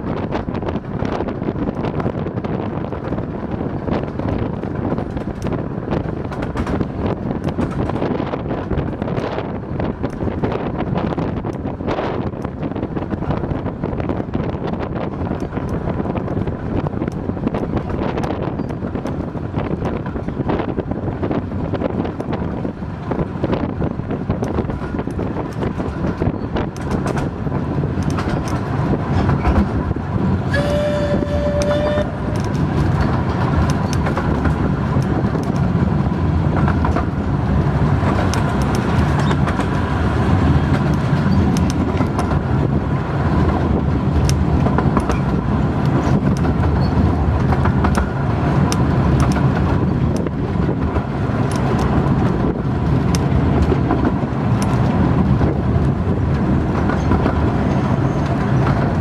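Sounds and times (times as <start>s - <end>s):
miniature train rumbling on track: 0.0s - 59.0s
wheels clicking over rails: 0.3s - 59.0s
locomotive short high whistle: 30.5s - 32.6s.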